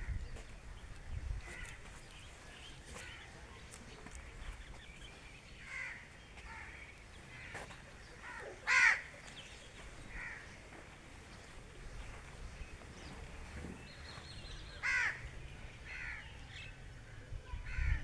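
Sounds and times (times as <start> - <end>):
bird harsh cawing calls: 1.4 - 2.2, 5.6 - 10.8, 14.0 - 18.0.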